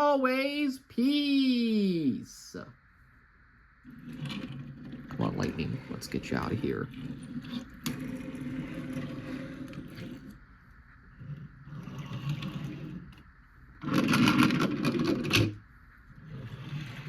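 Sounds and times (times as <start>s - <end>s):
toy cars rattling clatter: 13.8s - 15.6s.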